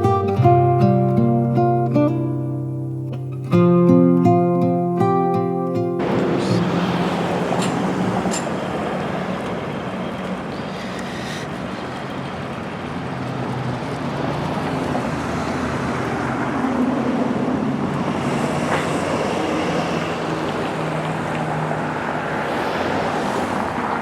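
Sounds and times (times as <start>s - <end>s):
road traffic noise: 5.8s - 24.0s
vehicle passing close: 6.0s - 24.0s.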